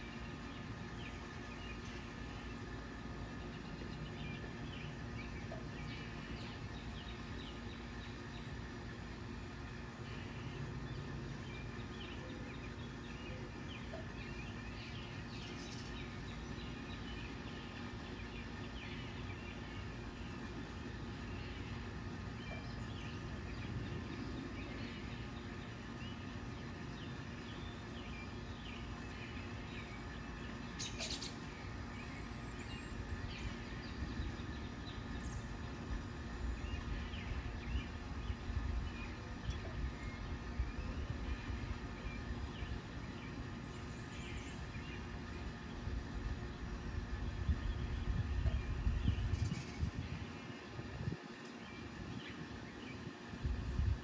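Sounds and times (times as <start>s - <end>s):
birds chirping: 0.0s - 54.0s
steady background hum: 0.0s - 54.0s.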